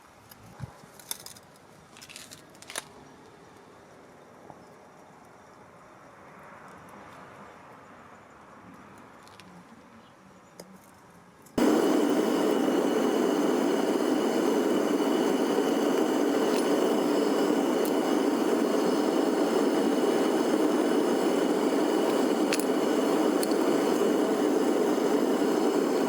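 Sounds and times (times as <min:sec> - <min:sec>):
faint high steady tone: 0:11.6 - 0:26.0
furnace burner roaring: 0:11.6 - 0:26.0.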